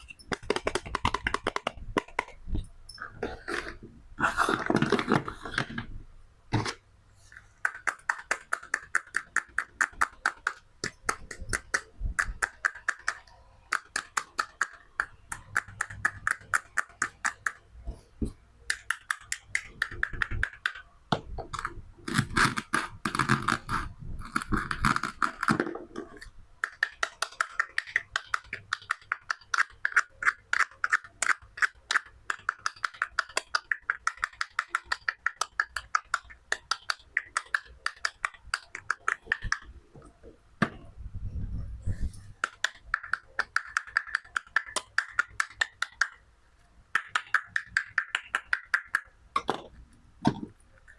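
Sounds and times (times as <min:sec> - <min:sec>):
toy knife cutting play food: 0:26.6 - 0:38.2.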